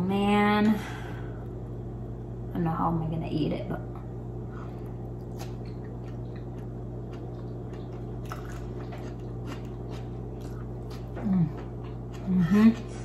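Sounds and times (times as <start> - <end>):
steady low hum: 0.0 - 13.0
chewing: 4.8 - 13.0.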